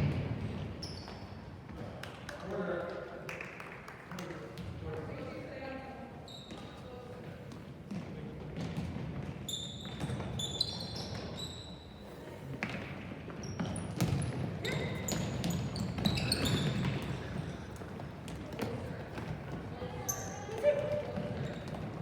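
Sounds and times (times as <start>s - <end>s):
sneakers squeaking on floor: 0.0s - 1.7s, 6.2s - 22.0s
murmur of spectators: 14.2s - 22.0s.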